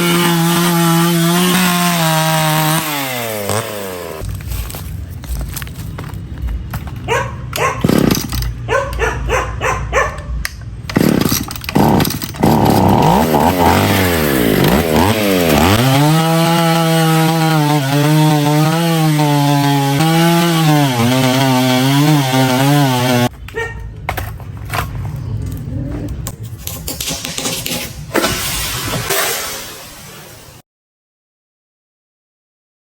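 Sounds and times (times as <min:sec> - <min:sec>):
chainsaw engine revving: 0:00.0 - 0:04.2, 0:07.7 - 0:08.6, 0:10.9 - 0:23.3.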